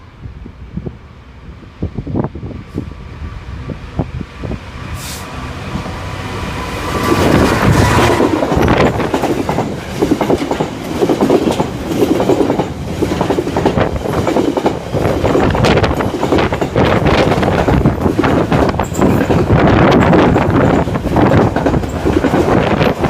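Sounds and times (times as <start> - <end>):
train wheels clattering over rails: 6.4 - 23.0.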